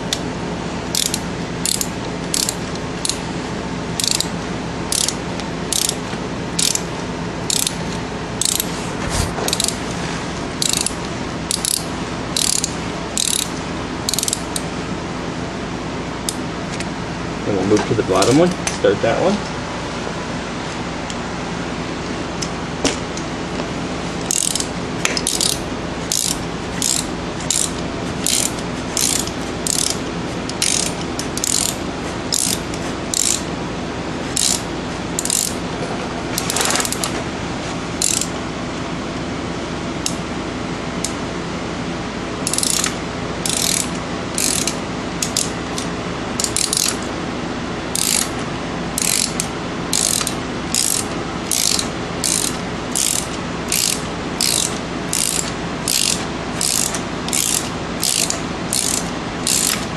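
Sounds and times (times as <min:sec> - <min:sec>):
steady hum: 0:00.0 - 0:59.9
socket ratchet clicking: 0:00.9 - 0:03.2, 0:04.0 - 0:04.3, 0:04.9 - 0:06.0, 0:06.6 - 0:06.9, 0:07.5 - 0:07.8, 0:08.4 - 0:08.7, 0:09.5 - 0:09.8, 0:10.6 - 0:14.7, 0:24.2 - 0:33.5, 0:34.4 - 0:35.6, 0:38.0 - 0:38.3, 0:42.4 - 0:47.1, 0:47.9 - 0:48.4, 0:49.0 - 0:59.9.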